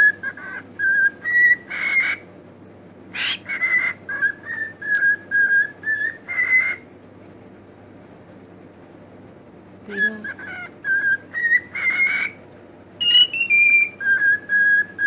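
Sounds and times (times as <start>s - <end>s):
pet bird whistling: 0.0s - 2.3s, 3.1s - 6.9s, 9.9s - 12.4s, 13.0s - 15.0s.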